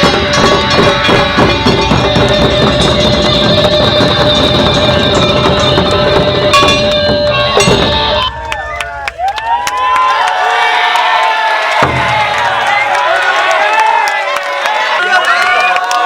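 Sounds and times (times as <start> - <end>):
plucked strings: 0.0 - 8.4
taiko drums beating: 0.0 - 10.1, 11.7 - 13.1.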